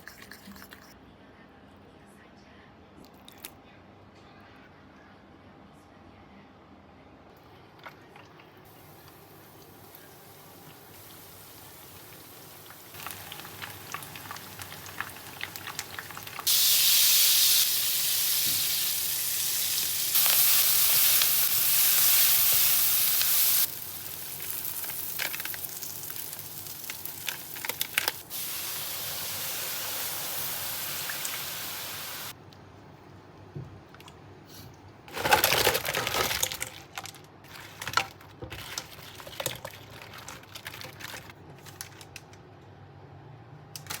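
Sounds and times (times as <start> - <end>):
food sizzling in hot oil: 8.8 - 32.3.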